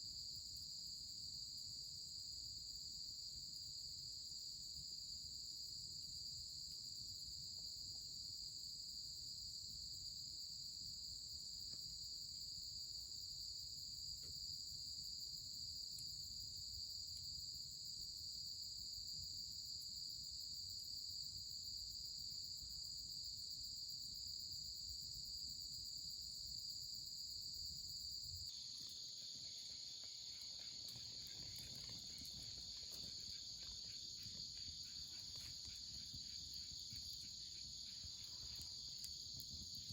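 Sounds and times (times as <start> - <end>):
insects chirping: 0.2 - 39.9.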